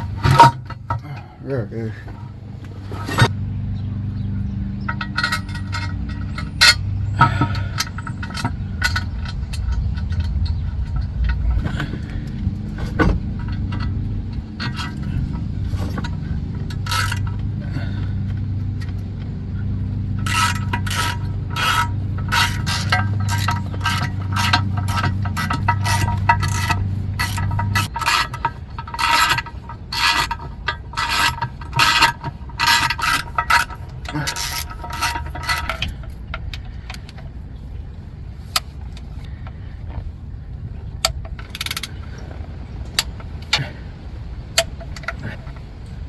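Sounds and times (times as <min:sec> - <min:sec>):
metal clinks and scrapes: 0:00.0 - 0:46.0
steady low hum: 0:00.0 - 0:46.0
ratchet clicking: 0:04.8 - 0:37.3, 0:41.0 - 0:43.8.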